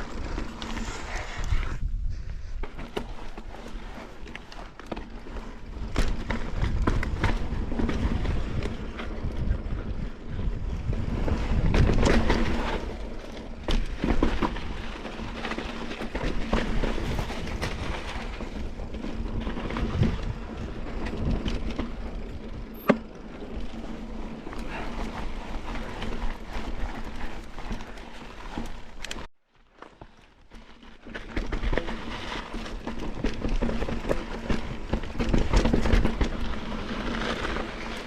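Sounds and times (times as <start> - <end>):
wind on microphone: 0.7 - 2.7, 5.9 - 13.0, 16.7 - 22.7
bike knocks and rattles: 2.1 - 38.0
tyres rumbling on rock: 2.6 - 29.3, 30.6 - 38.0.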